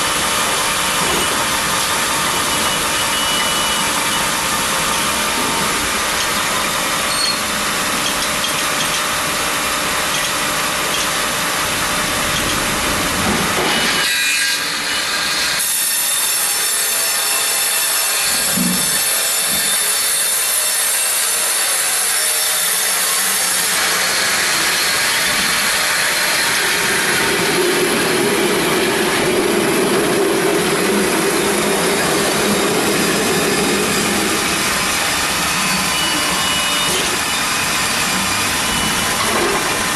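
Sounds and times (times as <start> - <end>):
band sawmill sawing log: 13.2 - 39.9.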